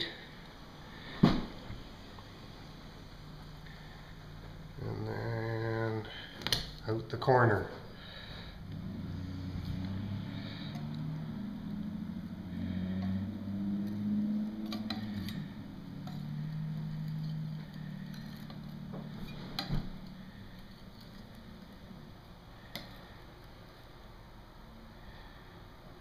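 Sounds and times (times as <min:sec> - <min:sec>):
low engine hum: 0:08.0 - 0:22.7.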